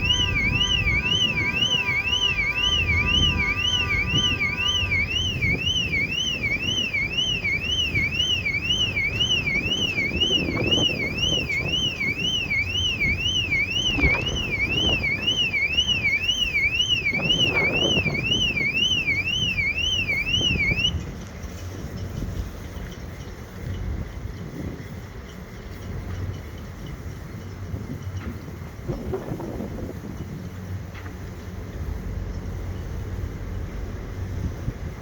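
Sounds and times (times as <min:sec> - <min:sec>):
low rumble: 0:00.0 - 0:07.2
warbling electronic alarm: 0:00.0 - 0:20.9.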